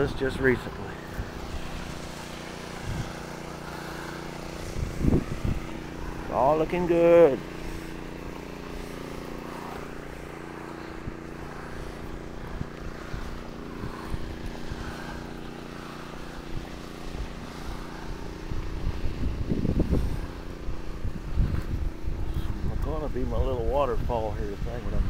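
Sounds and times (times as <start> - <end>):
engine running steadily: 0.0 - 25.0
wind buffeting microphone: 0.9 - 6.4, 9.8 - 25.0.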